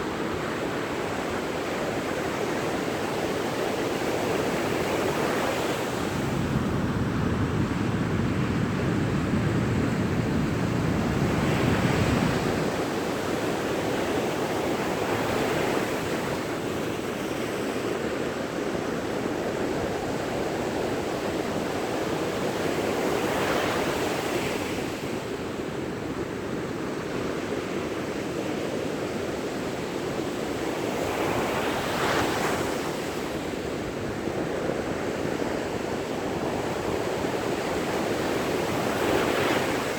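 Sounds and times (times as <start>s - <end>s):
wind buffeting microphone: 6.0s - 13.6s.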